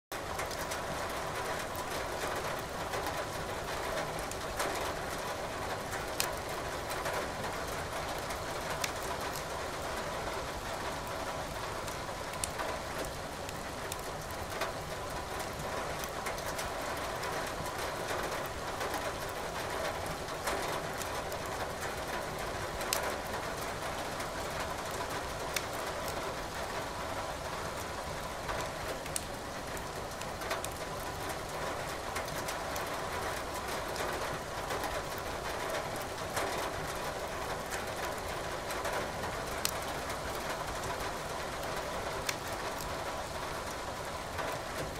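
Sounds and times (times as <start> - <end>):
firewood crackling and popping: 8.8 - 9.4, 12.3 - 12.6, 24.9 - 25.8, 39.6 - 39.8, 42.2 - 42.9.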